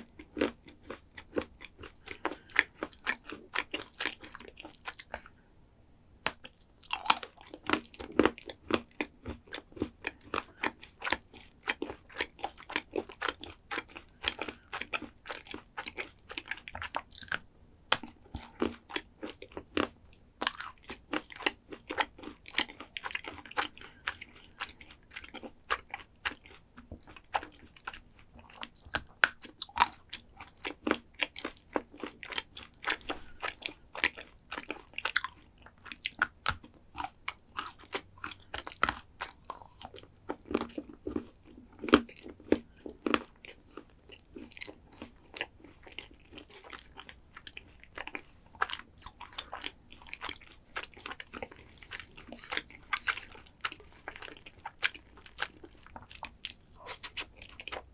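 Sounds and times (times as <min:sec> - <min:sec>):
crunchy chewing: 0:00.0 - 0:05.4, 0:06.3 - 0:57.9
wet chewing clicks: 0:00.0 - 0:05.4, 0:06.3 - 0:57.9.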